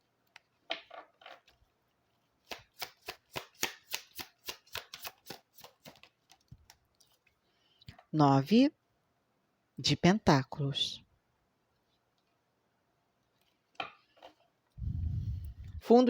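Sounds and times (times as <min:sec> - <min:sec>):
cards being shuffled: 0:02.4 - 0:07.2.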